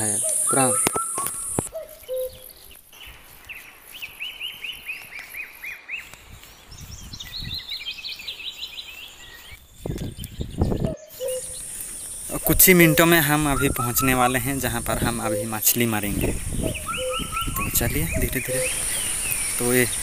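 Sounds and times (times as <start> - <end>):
bird chirping rapidly: 0.0 - 3.1, 4.2 - 20.0
outdoor background noise: 0.0 - 20.0.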